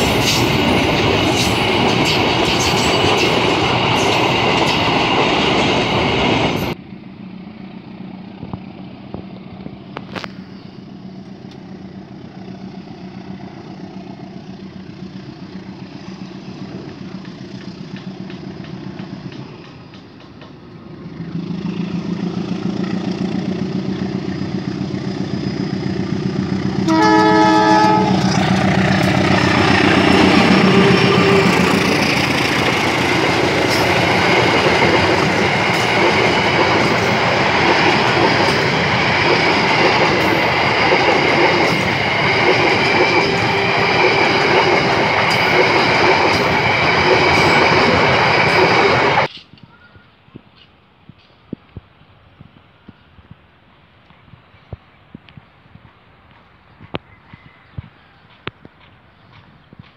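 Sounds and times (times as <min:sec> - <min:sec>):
wheels clacking over rail joints: 0:00.0 - 0:06.8, 0:22.8 - 0:49.6
locomotive engine running: 0:00.0 - 0:49.3
locomotive horn blast: 0:26.8 - 0:28.6.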